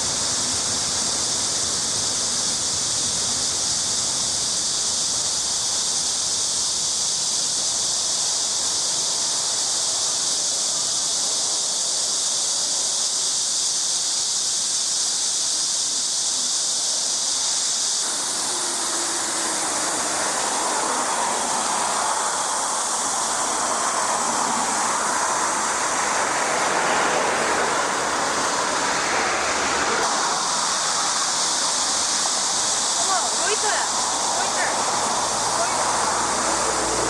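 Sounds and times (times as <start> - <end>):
water rushing: 17.8 - 37.0.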